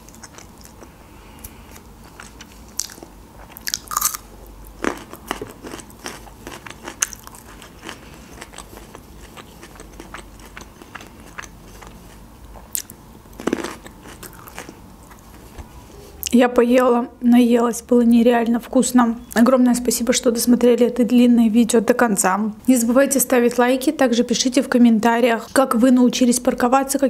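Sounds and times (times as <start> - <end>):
crunchy chewing: 0.0 - 15.6.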